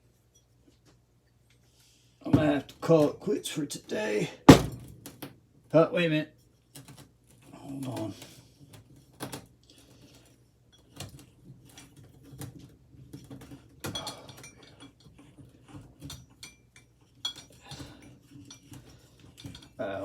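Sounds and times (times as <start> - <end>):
hand tools clicking on metal parts: 10.7 - 20.0.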